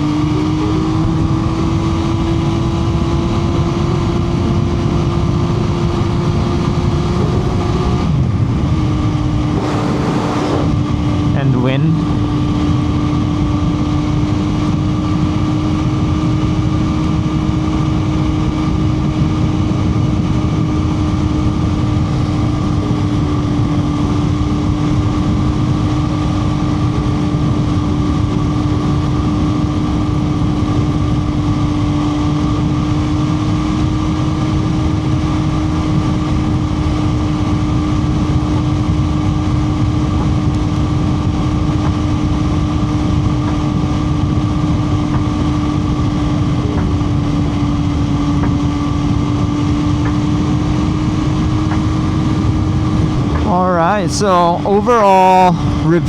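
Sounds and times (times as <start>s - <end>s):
motorcycle engine at high rpm: 0.0s - 53.6s
wind rushing over microphone: 4.2s - 32.8s.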